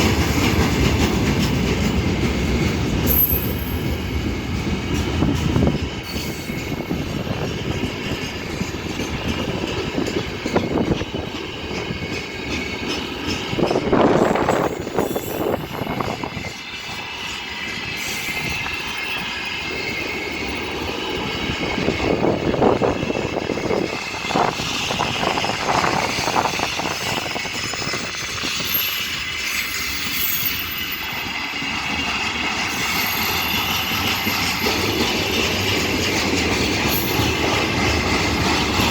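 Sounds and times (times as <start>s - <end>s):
freight train rolling past: 0.0s - 38.9s
metallic wheel squeal: 5.9s - 9.5s, 11.7s - 20.6s, 25.8s - 35.4s.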